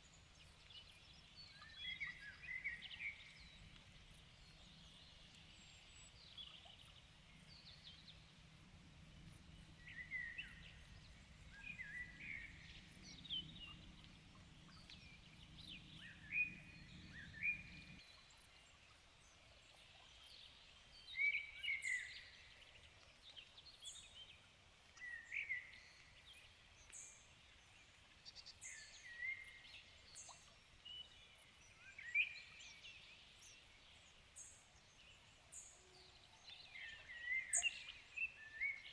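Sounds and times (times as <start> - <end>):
faint low hum: 0.0 - 21.1.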